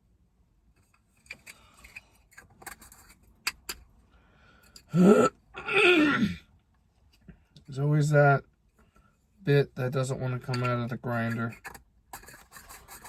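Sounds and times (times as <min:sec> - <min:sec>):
herb grinder clicks and scrapes: 0:00.9 - 0:03.8, 0:10.5 - 0:13.0.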